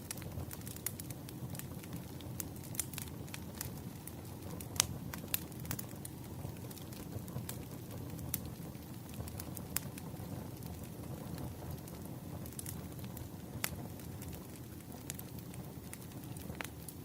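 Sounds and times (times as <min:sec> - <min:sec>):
fire crackling: 0:00.0 - 0:17.0
firewood snaps and pops: 0:04.6 - 0:06.9, 0:12.5 - 0:12.8.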